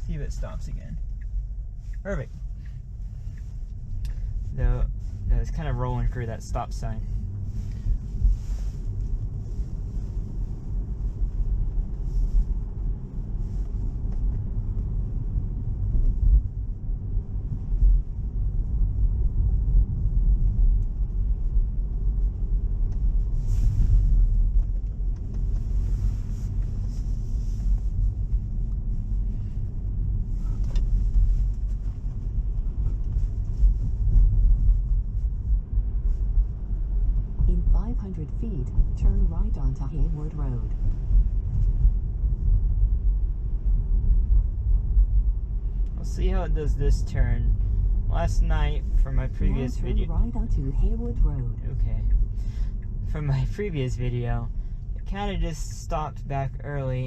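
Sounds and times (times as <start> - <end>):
road and tyre rumble in car: 0.0 - 57.0.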